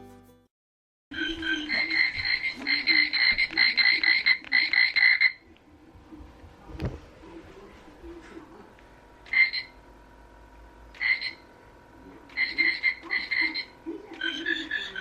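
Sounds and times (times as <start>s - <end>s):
rasping frog-like croaks: 1.2s - 5.4s, 9.3s - 9.8s, 11.0s - 11.4s, 12.3s - 15.0s.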